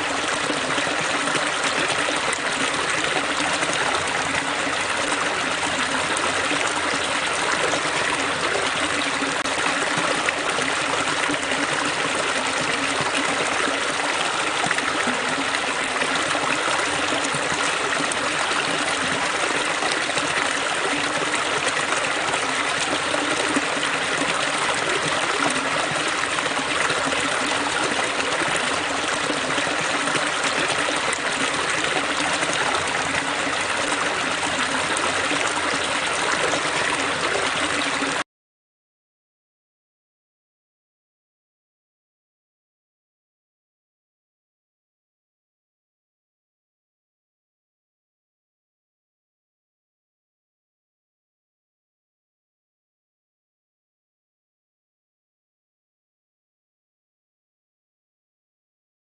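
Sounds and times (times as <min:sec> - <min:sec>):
water splashing over rocks: 0:00.0 - 0:38.2.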